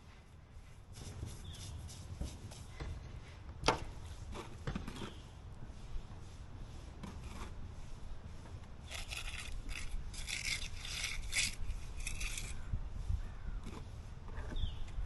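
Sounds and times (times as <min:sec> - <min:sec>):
hand tool scraping hard surface: 0:08.8 - 0:12.6.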